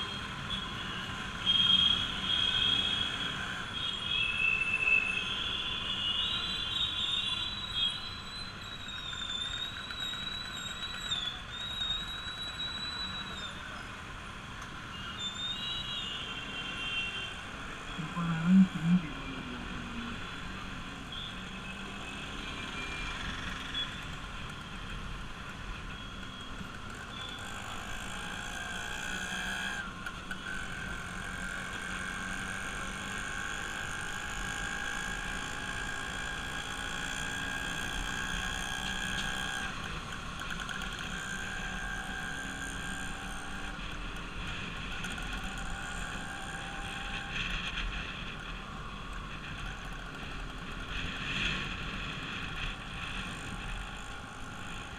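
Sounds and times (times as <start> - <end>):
motorcycle engine running: 21.8 - 54.9.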